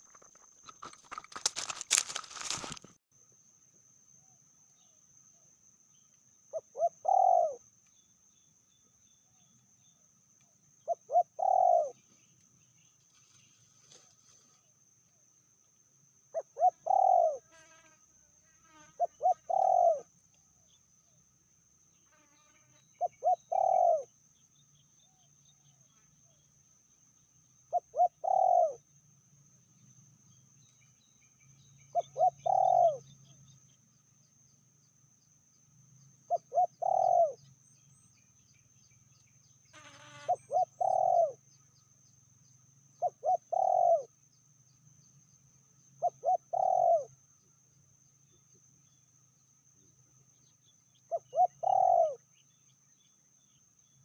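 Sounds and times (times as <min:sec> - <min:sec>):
dove cooing: 0:06.5 - 0:07.6, 0:10.8 - 0:12.0, 0:16.4 - 0:17.4, 0:19.0 - 0:20.1, 0:23.0 - 0:24.1, 0:27.7 - 0:28.8, 0:31.9 - 0:33.0, 0:36.3 - 0:37.4, 0:40.2 - 0:41.4, 0:43.0 - 0:44.1, 0:46.0 - 0:47.1, 0:51.1 - 0:52.2.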